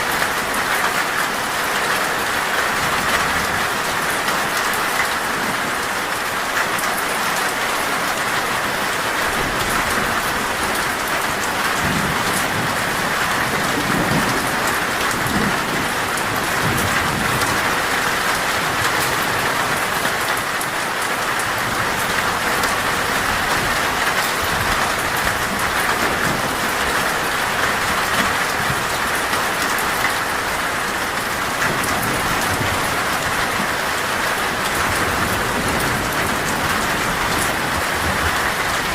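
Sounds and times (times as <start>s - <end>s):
torrential rain on a metal roof: 0.0s - 38.9s
low thunder rumble: 11.4s - 19.4s.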